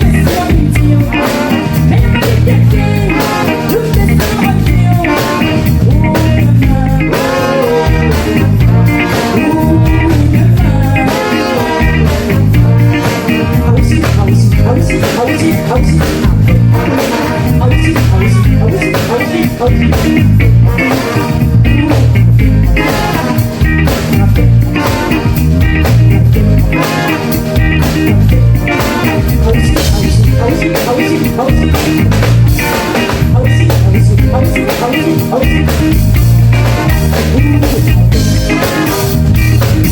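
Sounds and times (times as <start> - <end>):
pulsing bass beat: 0.0 - 1.2, 1.8 - 3.2, 4.0 - 7.1, 7.9 - 11.1, 11.8 - 39.9
guitar: 0.0 - 39.9
person singing: 0.0 - 39.9.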